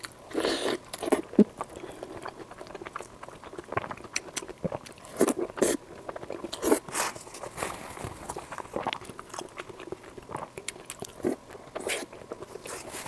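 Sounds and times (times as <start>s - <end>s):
wet chewing: 0.0s - 13.0s.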